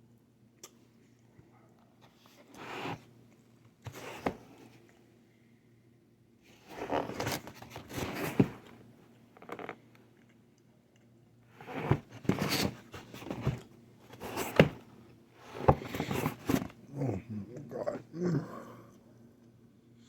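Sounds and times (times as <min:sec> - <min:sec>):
scraping and rustling: 0:06.5 - 0:08.8, 0:11.6 - 0:16.8.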